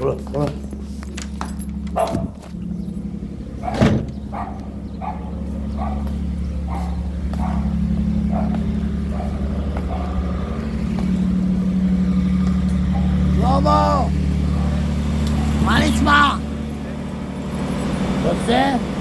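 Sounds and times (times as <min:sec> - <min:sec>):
car engine running: 0:00.0 - 0:19.0
dog barking: 0:02.0 - 0:02.4, 0:03.6 - 0:10.3, 0:12.9 - 0:13.2, 0:14.4 - 0:15.6.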